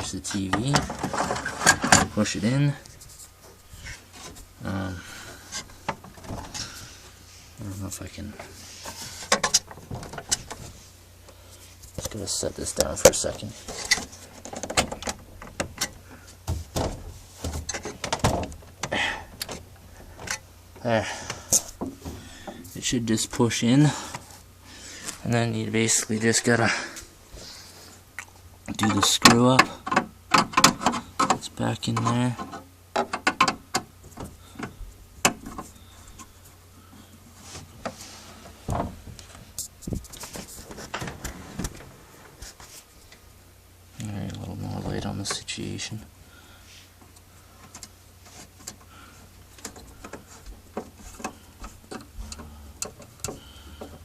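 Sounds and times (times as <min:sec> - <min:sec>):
clicks of handling parts and tools: 0:08.4 - 0:10.7, 0:28.8 - 0:36.3, 0:47.0 - 0:48.9, 0:49.5 - 0:54.0.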